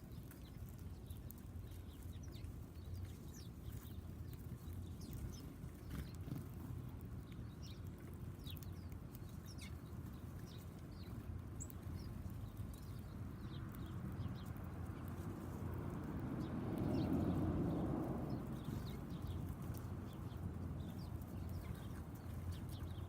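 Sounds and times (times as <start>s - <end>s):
low background rumble: 0.0s - 23.0s
songbirds chirping: 0.0s - 23.0s.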